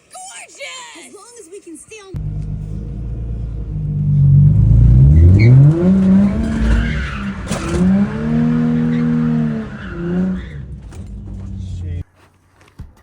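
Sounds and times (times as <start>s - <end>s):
car engine revving: 2.2s - 12.0s.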